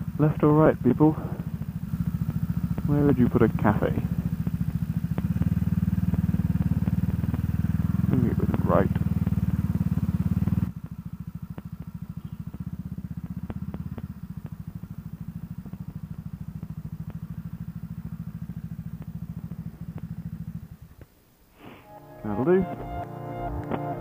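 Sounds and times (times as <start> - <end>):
motorcycle engine running: 0.0 - 24.0
faint ticks: 1.4 - 2.9, 4.3 - 7.9, 8.5 - 21.2.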